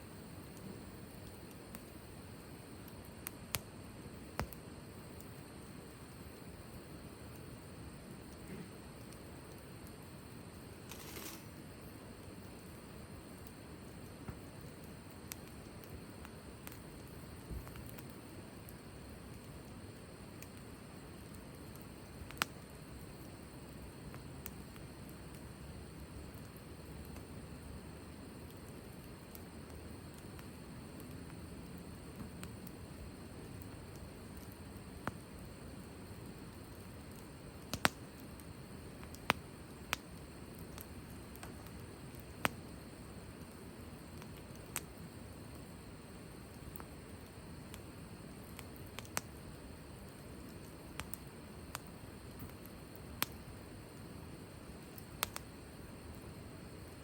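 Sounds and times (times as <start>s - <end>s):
campfire flames rumbling: 0.0s - 57.0s
fire crackles and pops: 0.0s - 57.0s
low steady hiss: 0.0s - 57.0s.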